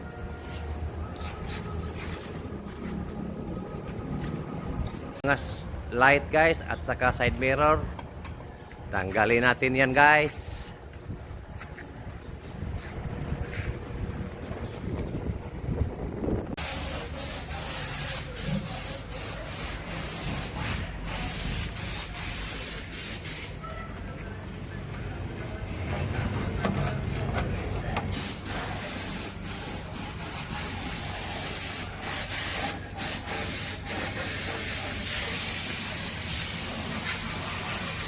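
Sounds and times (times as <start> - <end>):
high-pressure spray hissing: 16.6 - 23.6, 28.1 - 38.0.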